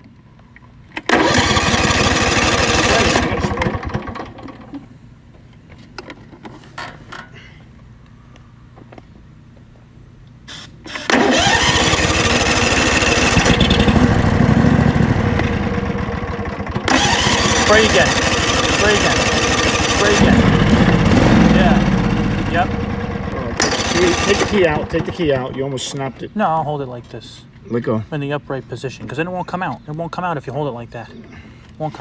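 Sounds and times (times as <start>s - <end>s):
tractor engine cranking: 1.0s - 4.8s, 10.9s - 26.2s.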